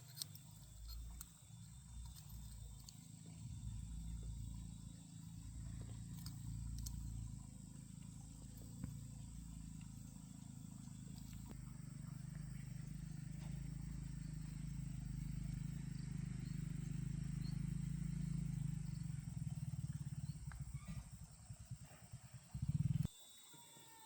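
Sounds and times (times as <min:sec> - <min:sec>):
tractor engine rumbling: 0:00.0 - 0:16.8.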